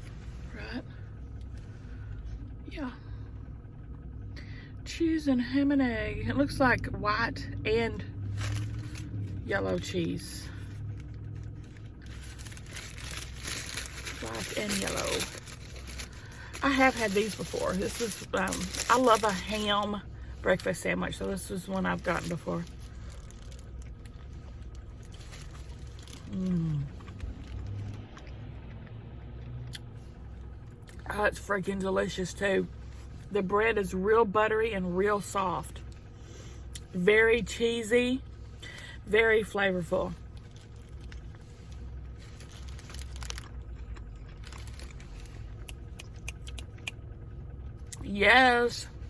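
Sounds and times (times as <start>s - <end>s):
steady low hum: 0.0s - 49.0s
person chewing food: 22.7s - 30.0s, 40.8s - 47.0s
woman humming while chewing: 26.3s - 27.2s.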